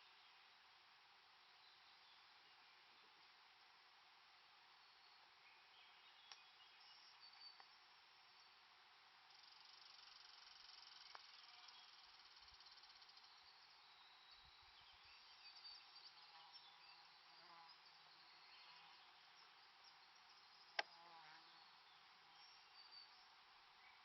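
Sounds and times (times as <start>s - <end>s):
insects buzzing and trilling: 9.2s - 24.0s.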